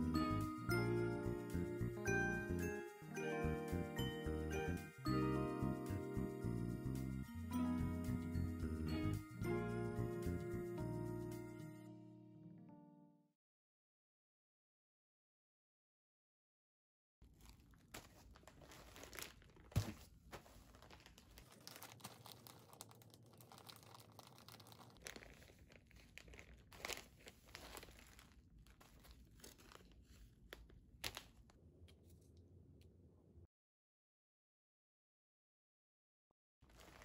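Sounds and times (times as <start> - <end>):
faint rustling and crinkling: 17.2 - 32.4, 36.6 - 37.0.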